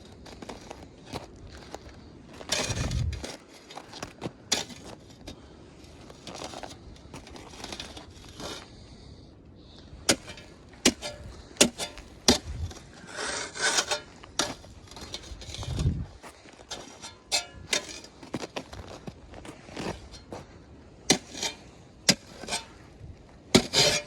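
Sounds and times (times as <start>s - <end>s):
footsteps crunching on icy snow: 18.1s - 20.6s.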